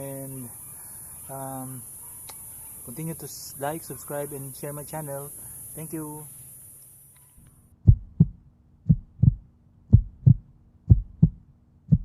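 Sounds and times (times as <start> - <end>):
heartbeat thumps: 7.8 - 12.0.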